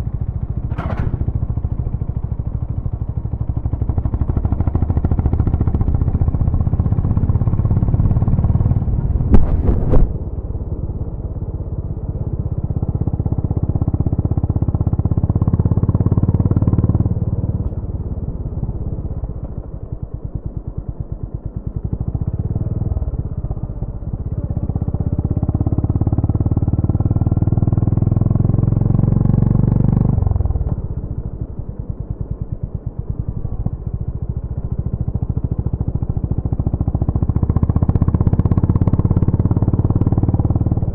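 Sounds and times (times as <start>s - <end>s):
sharp knocks: 9.3s - 10.2s.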